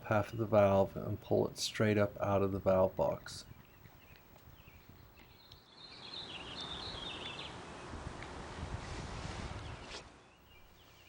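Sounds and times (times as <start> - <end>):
birds chirping faintly: 0.0 - 8.3, 9.6 - 11.0.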